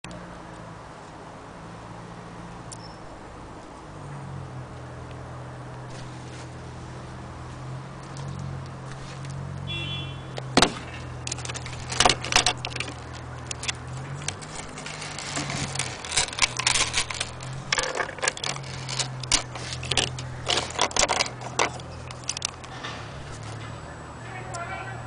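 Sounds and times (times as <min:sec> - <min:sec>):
clock parts clicking and rattling: 0:10.4 - 0:23.6.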